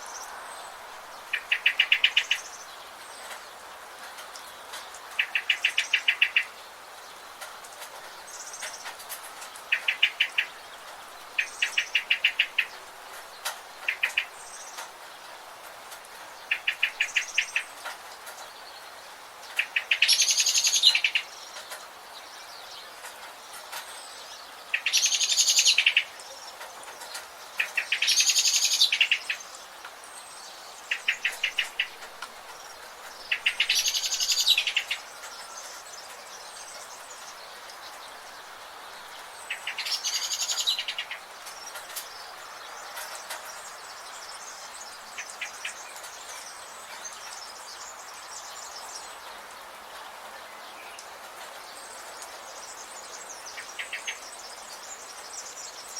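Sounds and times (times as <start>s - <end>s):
forest ambience hiss: 0.0s - 55.9s
songbird trilling: 1.3s - 2.7s, 5.2s - 6.6s, 9.7s - 10.6s, 11.4s - 12.8s, 19.6s - 21.6s, 24.7s - 26.5s, 27.6s - 29.6s, 30.2s - 32.1s, 33.2s - 37.2s, 39.4s - 41.3s.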